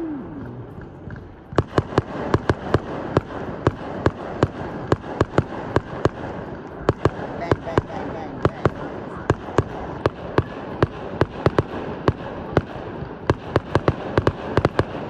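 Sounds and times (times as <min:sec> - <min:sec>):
short falling tone: 0:00.0 - 0:01.0
fireworks cracking and banging: 0:00.0 - 0:15.0.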